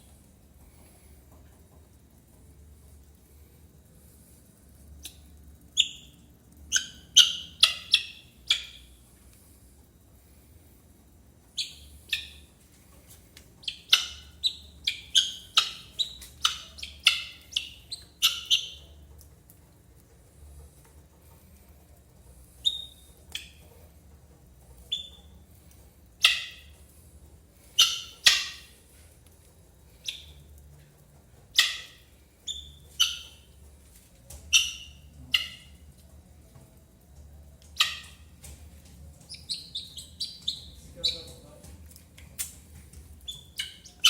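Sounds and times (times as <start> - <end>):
guineafowl harsh calls: 6.7 - 8.8, 13.6 - 18.8, 26.2 - 26.7, 27.7 - 28.7, 31.5 - 32.0, 37.8 - 38.2.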